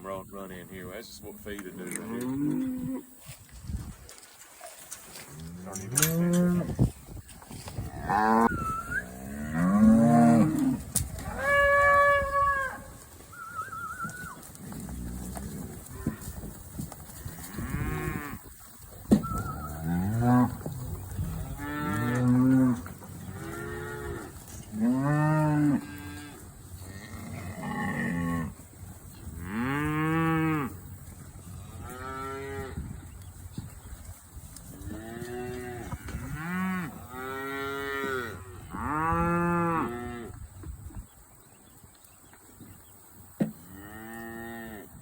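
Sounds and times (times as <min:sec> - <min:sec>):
cows and calves mooing: 0:01.6 - 0:03.2, 0:05.2 - 0:07.0, 0:07.6 - 0:16.5, 0:17.1 - 0:33.1, 0:34.7 - 0:40.4, 0:43.6 - 0:45.0.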